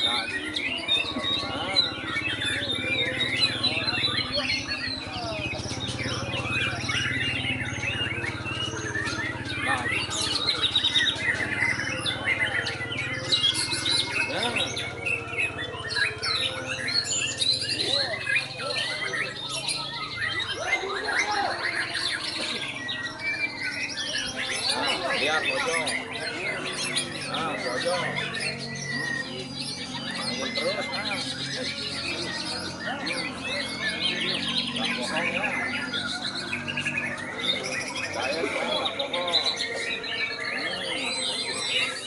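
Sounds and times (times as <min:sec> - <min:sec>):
bird singing chirps and whistles: 0:00.0 - 0:42.0.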